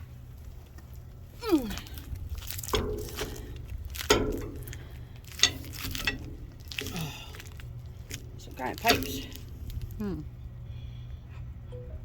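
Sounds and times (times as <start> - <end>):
heavy items clanking in dumpster: 1.3 - 10.2.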